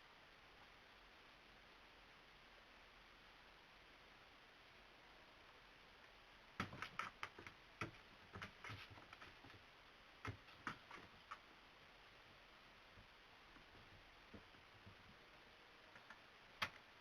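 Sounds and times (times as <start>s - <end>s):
cat toy clicks and taps: 6.6s - 9.6s, 10.3s - 11.4s.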